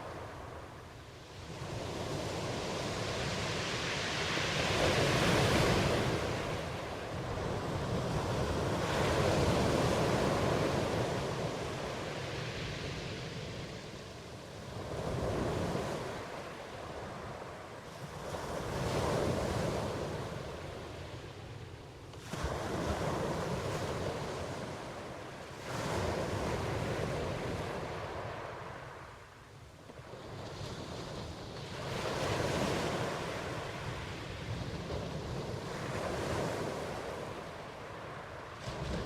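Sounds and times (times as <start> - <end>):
ocean waves breaking: 22.2 - 39.0.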